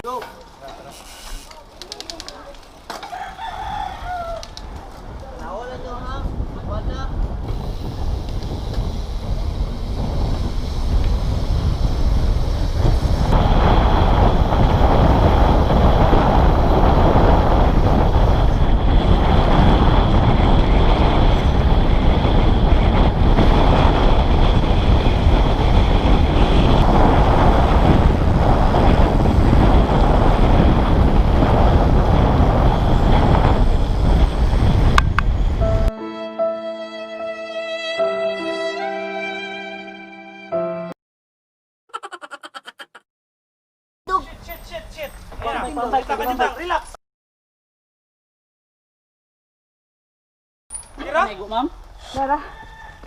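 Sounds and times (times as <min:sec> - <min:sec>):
mountain bike rattling: 0:00.1 - 0:06.4
wind buffeting microphone: 0:02.7 - 0:35.9.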